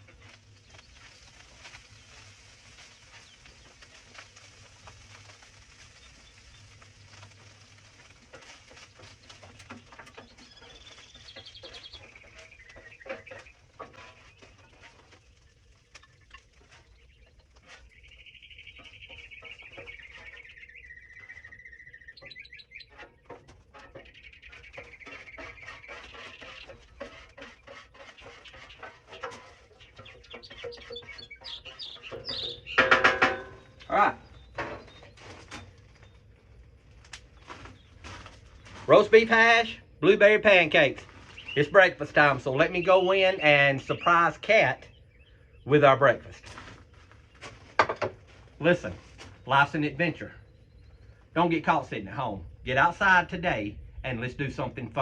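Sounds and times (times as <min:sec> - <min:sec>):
cooking utensils clicking and scraping: 0:00.0 - 0:35.8
birds calling: 0:00.0 - 0:55.0.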